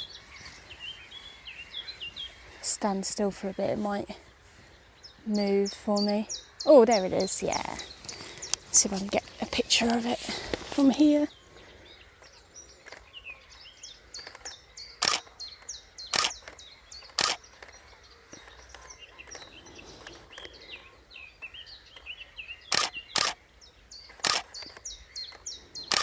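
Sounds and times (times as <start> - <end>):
camera shutter clicks: 14.2 - 15.3, 16.1 - 17.7, 22.7 - 23.4, 24.1 - 26.0
chiffchaff singing: 14.2 - 15.4, 16.1 - 17.7, 24.1 - 26.0.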